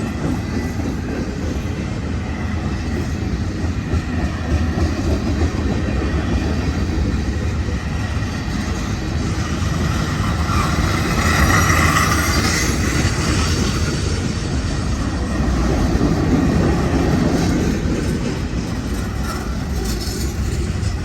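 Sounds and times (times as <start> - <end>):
steel wheels rumbling on rail: 0.0 - 21.0.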